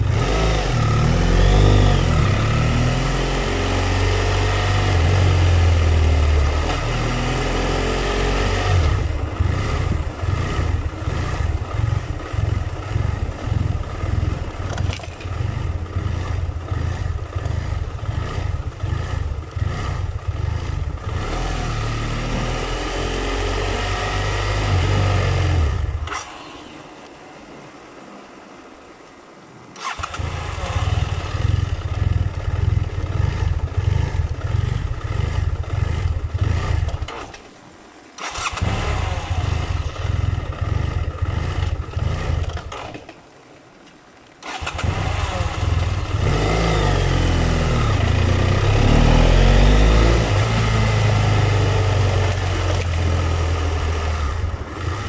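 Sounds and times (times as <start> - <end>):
engine starter cranking: 29.8 - 30.3, 38.2 - 38.8, 44.4 - 45.0.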